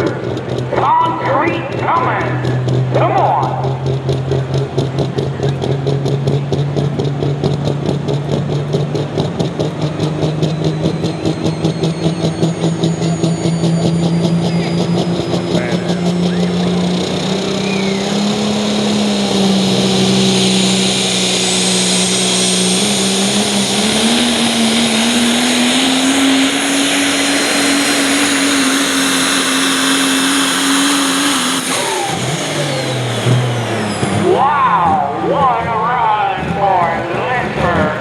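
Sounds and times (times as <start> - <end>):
diesel engine running flat out: 0.0 - 38.0
high whine: 10.9 - 38.0.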